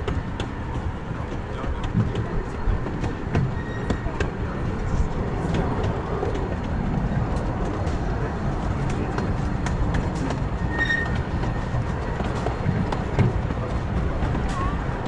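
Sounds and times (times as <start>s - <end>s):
miniature steam train running: 0.0s - 15.0s
wheels clicking on rails: 0.0s - 15.0s
high squeal: 10.6s - 11.2s.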